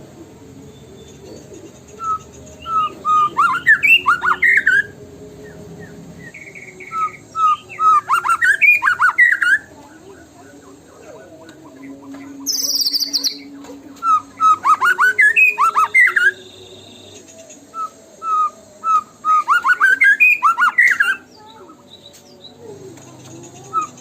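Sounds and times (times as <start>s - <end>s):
bird singing whistled notes: 0.6s - 10.6s, 11.4s - 22.6s, 23.2s - 24.0s
high fast bird trill: 1.1s - 5.0s, 5.8s - 9.7s, 11.8s - 17.2s, 18.3s - 21.6s.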